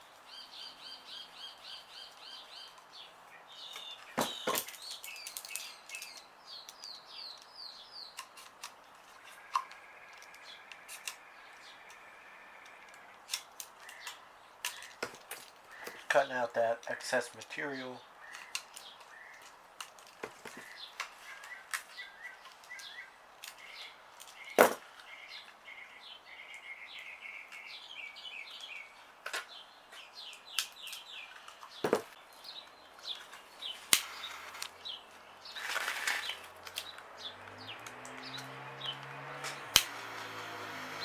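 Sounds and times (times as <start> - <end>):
birds chirping: 0.0 - 41.0
sharp clicks: 33.8 - 34.8, 36.2 - 41.0
brief rustle: 35.5 - 38.2.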